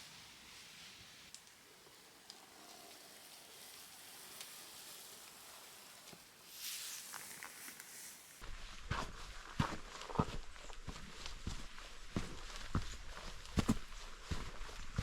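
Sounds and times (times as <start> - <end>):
soft outdoor hiss: 0.0 - 15.0
light ticks: 1.3 - 1.6
footsteps scuffing on path: 8.4 - 15.0.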